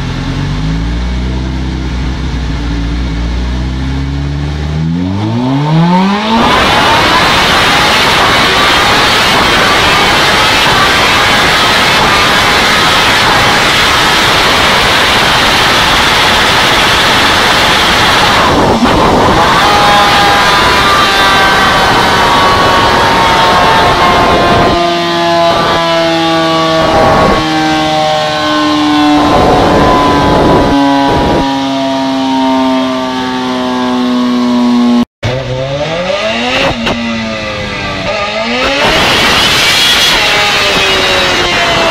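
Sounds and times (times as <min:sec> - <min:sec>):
motorcycle engine running: 0:00.0 - 0:27.7.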